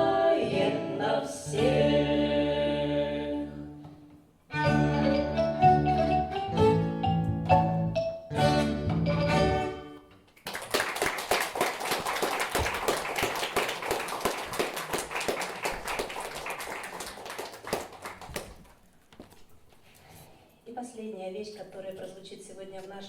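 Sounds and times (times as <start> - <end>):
song notes ringing out: 4.5 - 10.1
audience applauding: 10.4 - 18.8.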